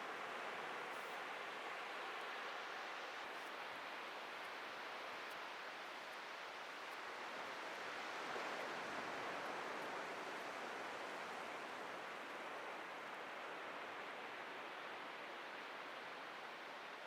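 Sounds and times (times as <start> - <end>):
waves breaking on a beach: 0.0 - 17.0.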